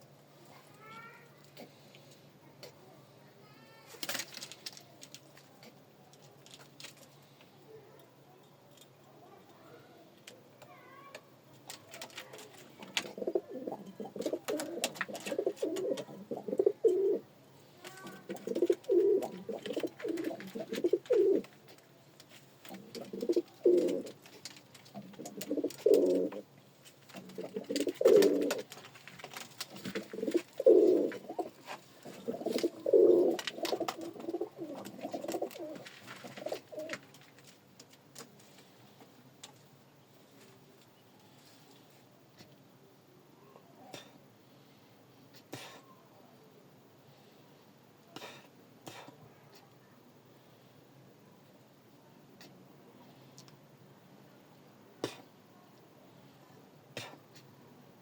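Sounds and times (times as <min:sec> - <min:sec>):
pigeon cooing: 0:11.9 - 0:17.3, 0:17.9 - 0:21.5, 0:22.7 - 0:24.2, 0:24.9 - 0:26.5, 0:27.2 - 0:28.8, 0:29.6 - 0:37.0.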